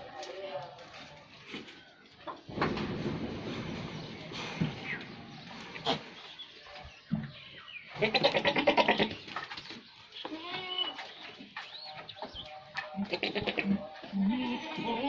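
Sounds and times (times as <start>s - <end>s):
goats bleating: 7.9s - 9.2s, 10.2s - 11.0s, 12.9s - 15.0s.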